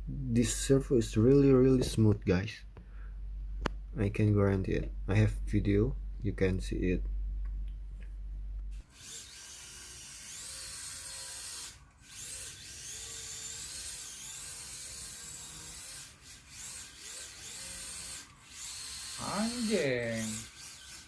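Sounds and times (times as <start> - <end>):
steering servo whining: 8.8 - 21.0.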